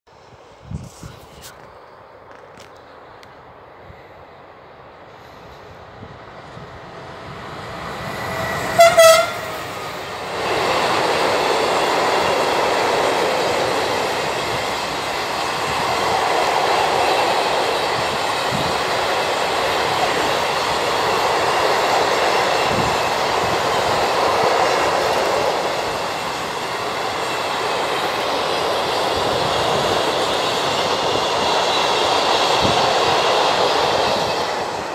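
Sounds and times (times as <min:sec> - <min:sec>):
electric locomotive passing: 0:01.6 - 0:34.9
train horn blast: 0:08.4 - 0:09.9.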